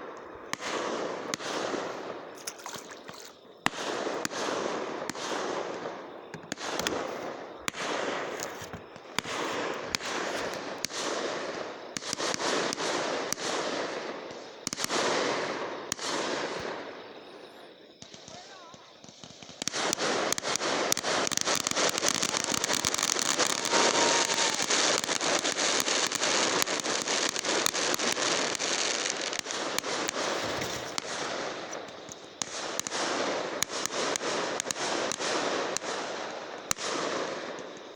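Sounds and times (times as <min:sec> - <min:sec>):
fireworks banging: 0:00.0 - 0:17.2, 0:18.0 - 0:37.9.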